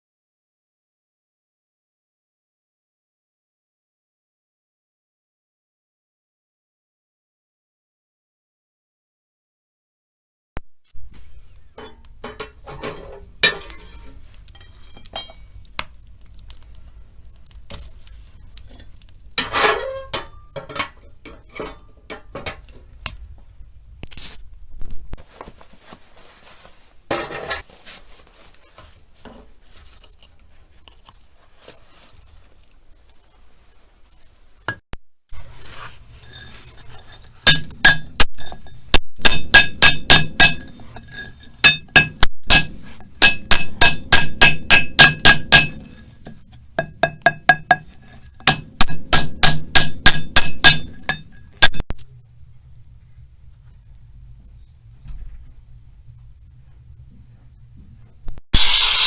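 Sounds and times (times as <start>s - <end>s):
small hard objects clinking: 11.1s - 22.7s, 35.4s - 51.8s.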